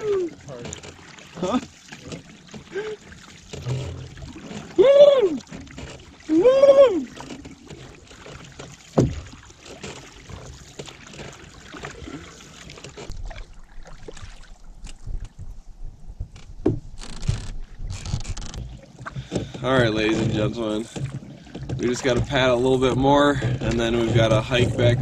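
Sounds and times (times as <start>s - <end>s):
water dripping from paddles: 0.0s - 15.3s
paddle knocking against hull: 0.0s - 15.5s, 16.2s - 25.0s.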